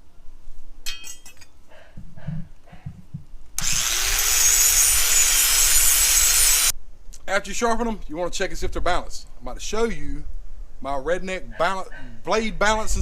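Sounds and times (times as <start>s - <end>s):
grinder grinding metal blade: 3.6s - 6.7s.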